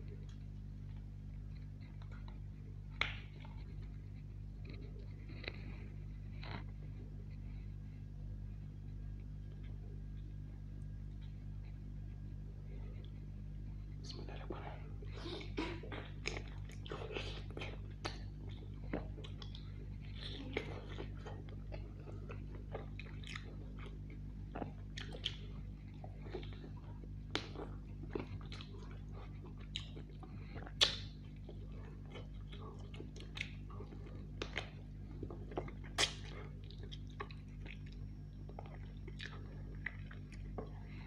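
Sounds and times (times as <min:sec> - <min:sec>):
chewing and biting chicken: 0:00.0 - 0:41.0
steady low hum: 0:00.0 - 0:41.0
wet mouth smacks: 0:01.9 - 0:03.7, 0:30.6 - 0:31.2, 0:35.6 - 0:38.0.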